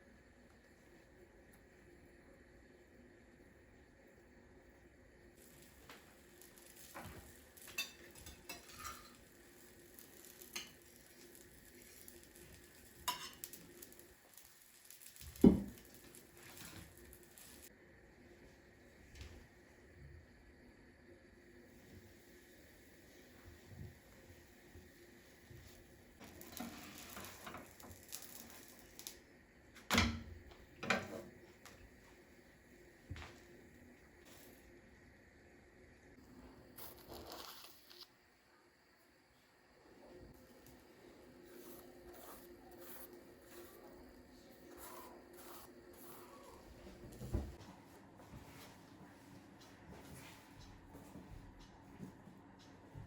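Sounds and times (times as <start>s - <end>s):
utensils clinking against dishes: 7.6s - 9.2s, 13.0s - 13.6s.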